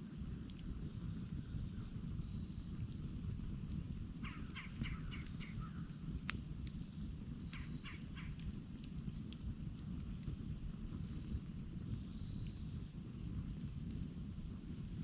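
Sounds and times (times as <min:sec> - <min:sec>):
campfire crackling: 0:00.0 - 0:15.0
bird calling: 0:04.2 - 0:05.8, 0:07.6 - 0:08.4.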